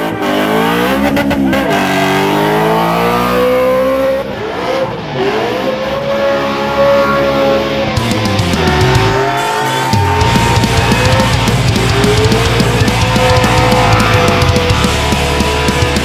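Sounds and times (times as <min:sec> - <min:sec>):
car engine revving hard: 0:00.0 - 0:16.0
tyres spinning: 0:07.9 - 0:16.0.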